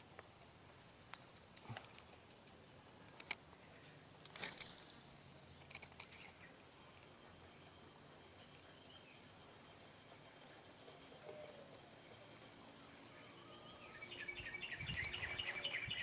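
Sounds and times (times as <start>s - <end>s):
small clicks: 3.1s - 3.6s, 4.2s - 6.4s.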